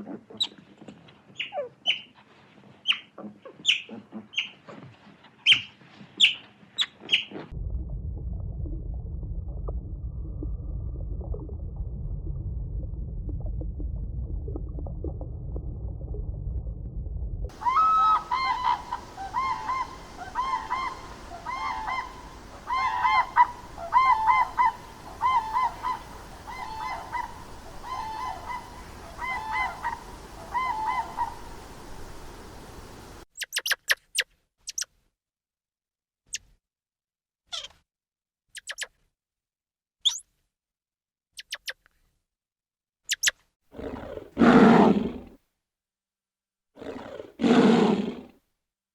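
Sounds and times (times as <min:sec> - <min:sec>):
bird honking: 0:17.5 - 0:33.1
high squeaks and clicks: 0:33.4 - 0:34.9, 0:37.5 - 0:37.8, 0:38.6 - 0:39.0, 0:41.4 - 0:41.9.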